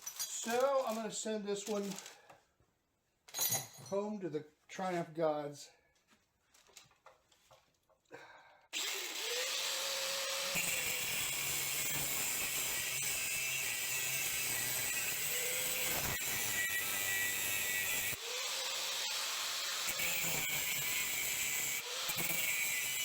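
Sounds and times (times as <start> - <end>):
power tool cutting steel: 8.8 - 23.0.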